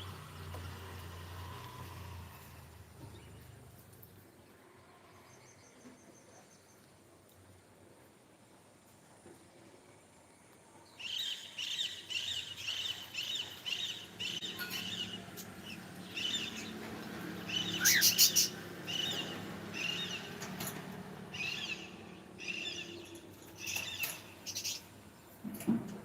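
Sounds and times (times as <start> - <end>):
cockatiel chirping: 17.6 - 20.2.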